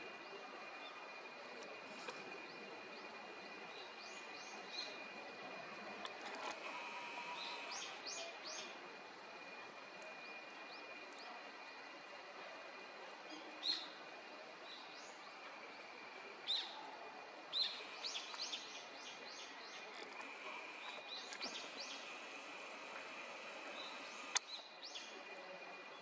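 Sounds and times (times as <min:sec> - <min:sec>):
songbirds chirping: 0:00.0 - 0:26.0
sharp click: 0:23.8 - 0:24.6.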